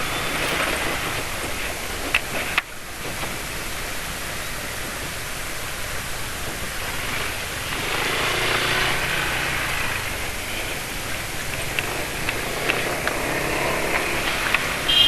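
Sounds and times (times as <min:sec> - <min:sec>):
wind and road noise: 0:00.0 - 0:15.0
vehicle passing: 0:06.6 - 0:15.0
sharp clicks: 0:11.4 - 0:14.9.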